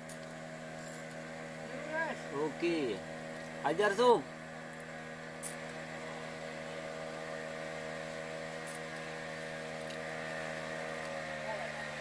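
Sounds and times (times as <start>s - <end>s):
small engine humming: 0.0s - 12.0s.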